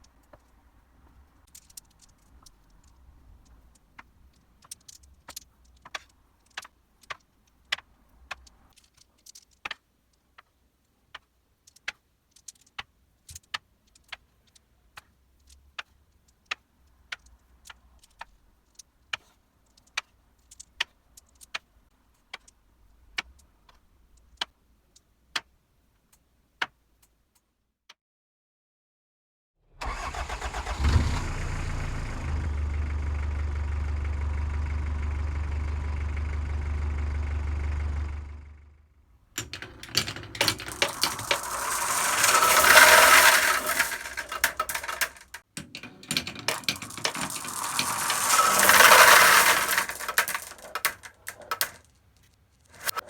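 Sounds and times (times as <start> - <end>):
low rolling rumble: 31.2 - 38.8, 39.5 - 45.3, 46.5 - 51.7
marbles clicking on wooden track: 39.4 - 51.9, 52.8 - 53.0.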